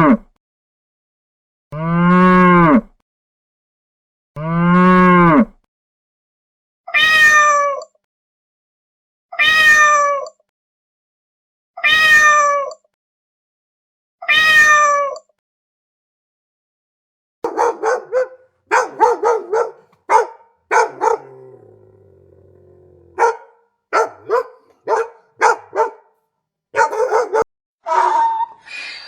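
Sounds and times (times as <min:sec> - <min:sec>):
cat meowing: 0:06.9 - 0:07.8, 0:09.4 - 0:10.2, 0:11.8 - 0:12.7, 0:14.3 - 0:15.2, 0:17.5 - 0:23.4, 0:24.0 - 0:25.9
cow mooing: 0:17.5 - 0:26.0.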